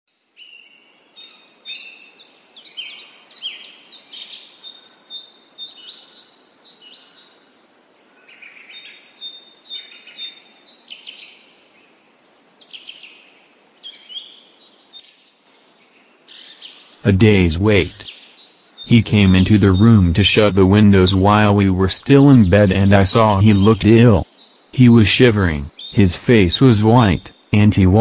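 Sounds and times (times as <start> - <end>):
songbirds chirping and singing: 16.4 - 28.0.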